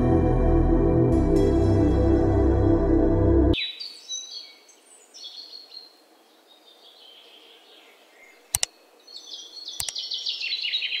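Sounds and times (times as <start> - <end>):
songbirds chirping: 3.6 - 11.0
sharp double clicks: 8.5 - 8.7, 9.8 - 10.0.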